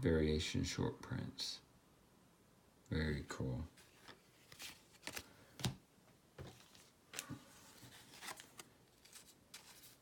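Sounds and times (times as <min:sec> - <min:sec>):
cards rustling and tapping: 0:03.8 - 0:05.8, 0:06.4 - 0:10.0.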